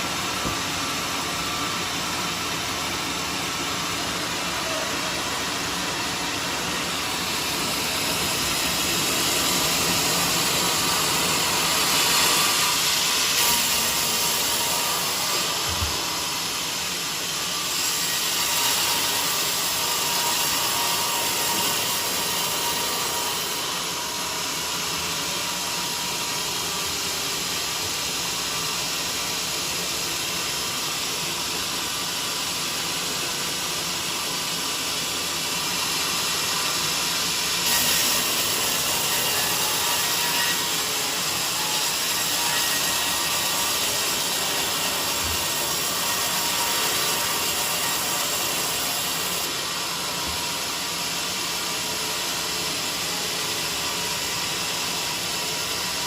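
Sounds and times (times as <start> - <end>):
band saw cutting log: 3.1 - 26.4, 35.3 - 56.0.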